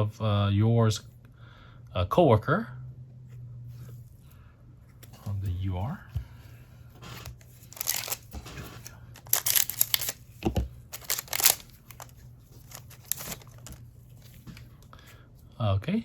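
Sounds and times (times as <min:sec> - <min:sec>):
cards crinkling and rustling: 0:04.9 - 0:15.2.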